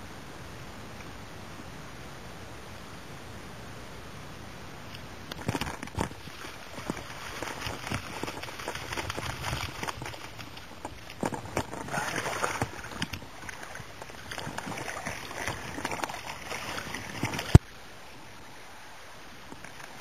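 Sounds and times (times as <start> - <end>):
faint steady hiss: 0.0 - 20.0
water splashing and rustling: 4.8 - 20.0.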